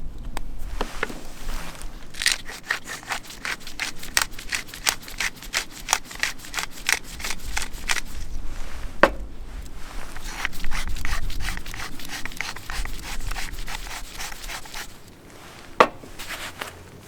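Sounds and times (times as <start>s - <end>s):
hand saw cutting wood: 2.1s - 8.2s, 10.1s - 15.1s.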